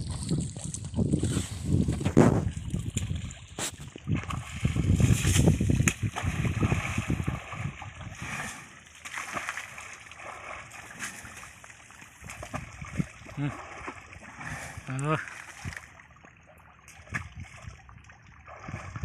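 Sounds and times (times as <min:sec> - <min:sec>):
water splashing and sloshing: 0:00.0 - 0:19.0.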